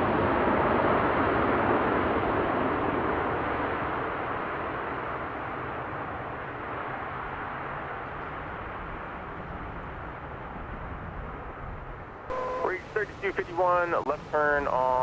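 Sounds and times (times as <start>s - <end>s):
jet engine roar: 12.3s - 15.0s.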